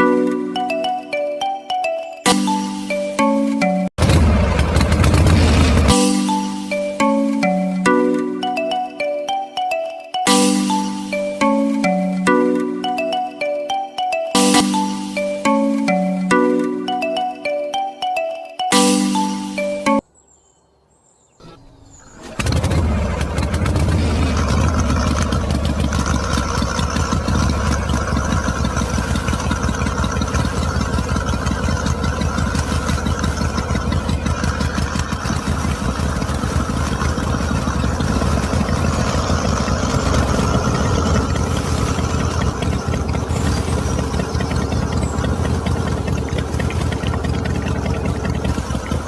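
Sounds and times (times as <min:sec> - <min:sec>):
small engine starting and running: 0:04.0 - 0:06.8, 0:21.4 - 0:49.0.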